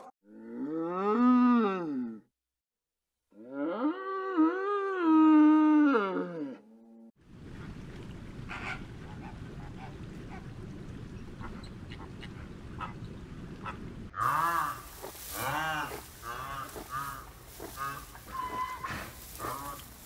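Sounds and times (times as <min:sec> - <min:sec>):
low background rumble: 0:07.2 - 0:14.2
loud animal calls: 0:13.6 - 0:20.0.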